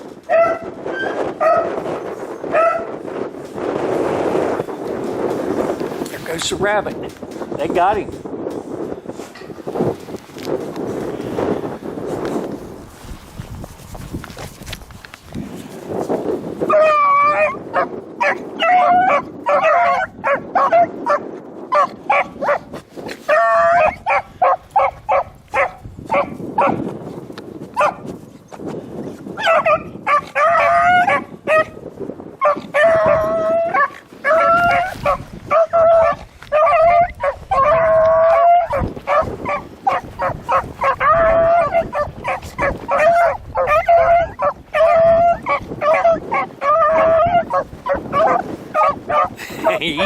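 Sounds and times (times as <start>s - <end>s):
wind on microphone: 0.0s - 50.0s
dogs baying: 16.7s - 22.7s, 23.3s - 26.8s, 29.4s - 31.8s, 32.4s - 50.0s.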